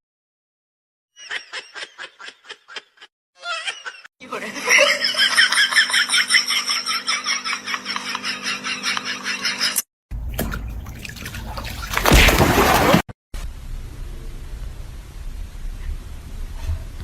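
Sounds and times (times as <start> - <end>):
person laughing: 1.2 - 9.8.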